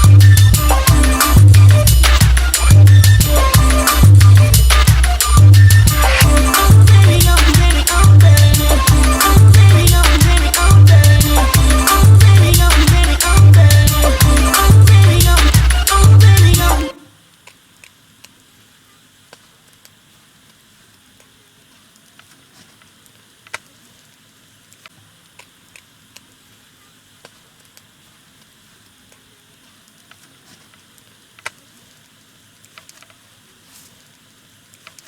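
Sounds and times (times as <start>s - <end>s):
wood fire crackling: 27.2s - 35.0s.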